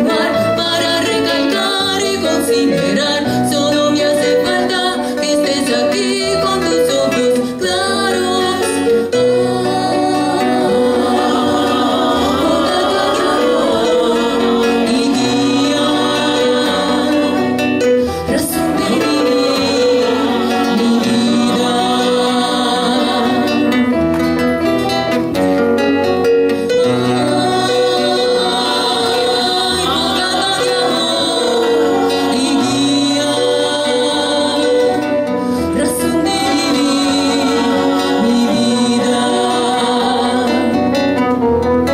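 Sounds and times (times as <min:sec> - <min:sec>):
person singing: 0:00.0 - 0:24.4, 0:26.6 - 0:41.4
guitar: 0:00.0 - 0:41.9.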